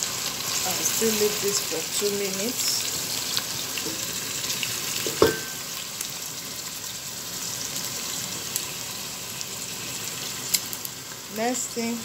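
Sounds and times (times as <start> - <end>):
vegetables sizzling in oil: 0.0 - 12.0
metallic knock: 5.1 - 5.6.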